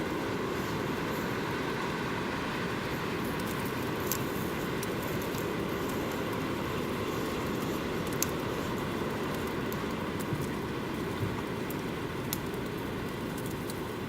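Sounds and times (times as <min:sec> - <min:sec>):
campfire burning: 0:00.0 - 0:14.0
wood crackling and popping: 0:03.3 - 0:14.0.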